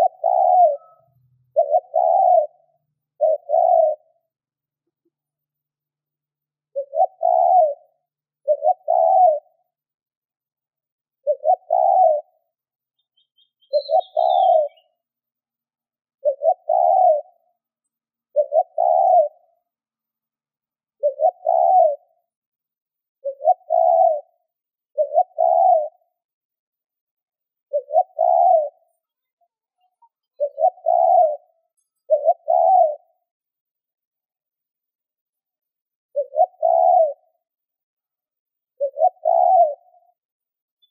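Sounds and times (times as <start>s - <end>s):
dove cooing: 0.0s - 4.4s, 6.7s - 9.7s, 11.2s - 12.4s, 13.6s - 15.0s, 16.2s - 17.6s, 18.3s - 19.6s, 21.0s - 22.2s, 23.2s - 26.2s, 27.7s - 33.3s, 36.1s - 37.5s, 38.8s - 40.2s
small bird chirp: 0.0s - 6.0s, 6.6s - 15.4s, 16.2s - 40.9s.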